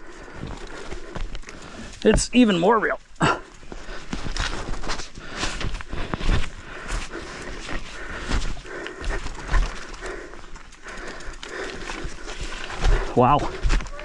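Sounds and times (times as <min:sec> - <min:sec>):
heavy panting: 0:00.0 - 0:02.0, 0:03.2 - 0:13.9
mountain bike rattling and thumping: 0:06.1 - 0:14.0.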